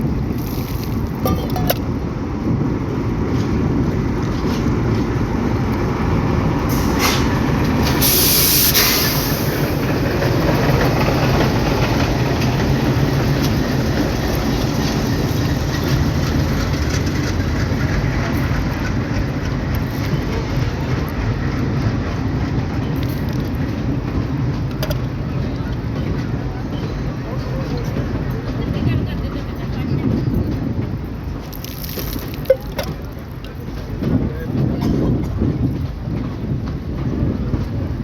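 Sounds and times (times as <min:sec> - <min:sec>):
train rumbling on tracks: 0:00.0 - 0:38.0
loud hiss: 0:06.7 - 0:09.8.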